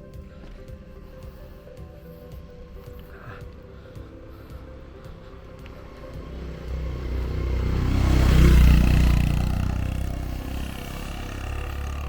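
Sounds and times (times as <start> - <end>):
motor vehicle passing by: 4.4 - 12.0.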